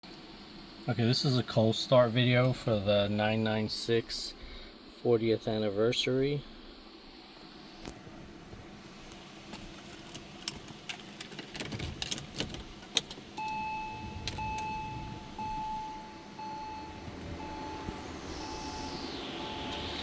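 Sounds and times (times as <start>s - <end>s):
keys jangling and clicking: 9.6s - 13.6s
dashboard warning chime: 13.4s - 20.0s.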